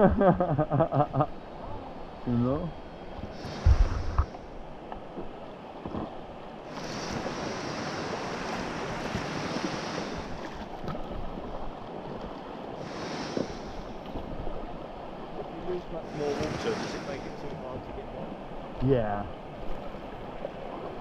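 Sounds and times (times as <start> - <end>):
whitewater river rushing: 15.5 - 17.5.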